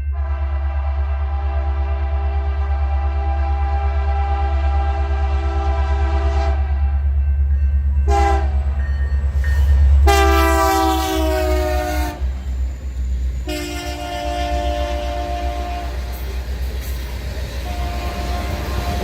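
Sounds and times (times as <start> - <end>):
passing train rumble: 0.0 - 19.0
locomotive air horn blasts: 0.1 - 6.9, 8.1 - 8.7, 10.0 - 12.4, 13.4 - 16.3, 17.6 - 19.0.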